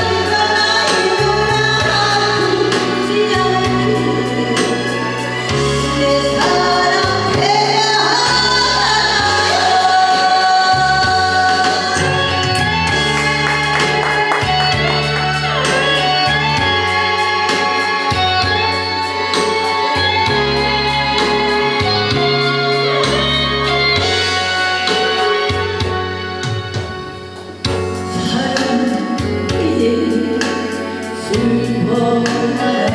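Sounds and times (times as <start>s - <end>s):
band with bass line: 0.0s - 32.9s
person singing: 26.8s - 32.9s.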